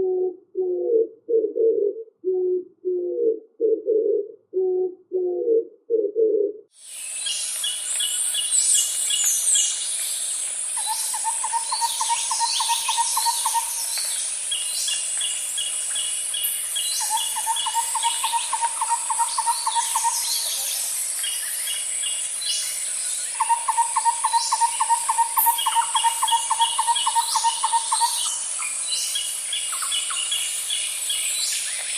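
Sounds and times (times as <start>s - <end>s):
dove cooing: 0.0s - 6.7s, 17.1s - 20.7s
songbird trill: 6.8s - 31.9s.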